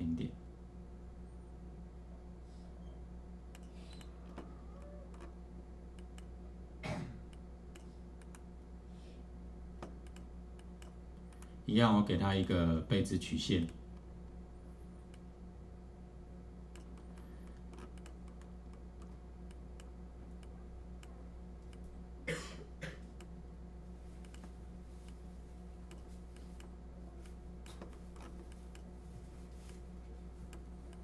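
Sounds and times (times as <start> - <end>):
steady electrical hum: 0.0 - 31.0
computer mouse and keyboard clicks: 3.5 - 5.4, 9.8 - 11.5, 16.7 - 21.9, 24.2 - 25.2, 25.8 - 28.9.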